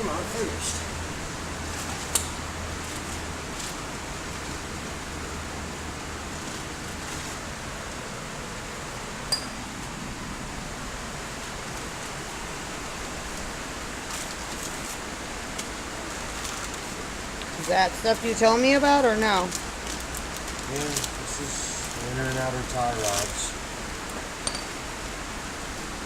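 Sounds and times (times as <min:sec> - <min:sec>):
background hiss: 0:00.0 - 0:26.0
metallic clink: 0:09.3 - 0:09.6, 0:24.4 - 0:24.8.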